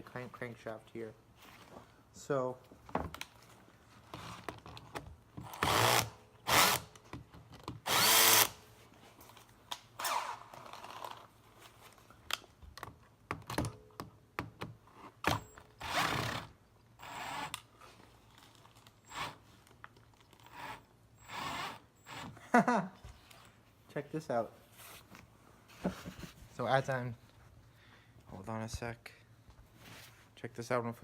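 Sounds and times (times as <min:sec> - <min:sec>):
power drill spinning socket: 0:07.8 - 0:08.6.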